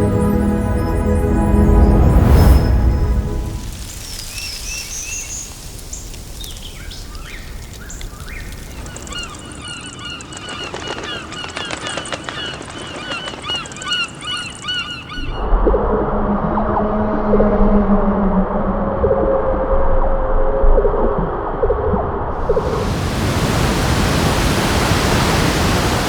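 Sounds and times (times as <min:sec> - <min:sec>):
flock of birds calling: 0:04.0 - 0:15.4
high bird chirping: 0:04.1 - 0:15.4.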